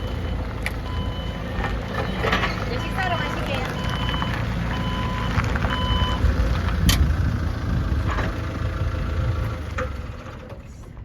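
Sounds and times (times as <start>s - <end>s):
reversing alarm beep: 0.0s - 1.4s, 2.0s - 6.2s
forklift engine running: 0.0s - 11.0s.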